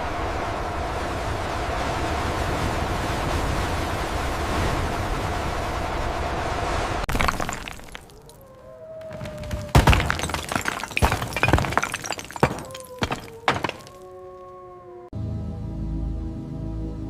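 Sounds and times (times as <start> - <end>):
sharp cracks and thuds: 9.0 - 14.0
ambient music: 15.2 - 17.0.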